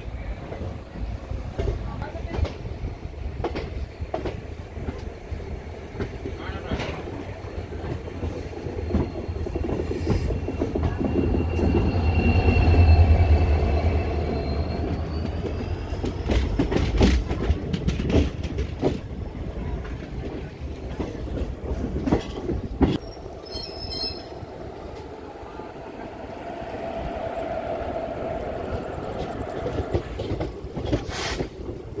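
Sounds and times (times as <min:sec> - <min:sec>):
electric train passing: 0:00.0 - 0:19.8, 0:20.4 - 0:32.0
high wheel squeal: 0:09.0 - 0:16.3, 0:23.0 - 0:24.4
wheels clacking over rail joints: 0:13.3 - 0:32.0.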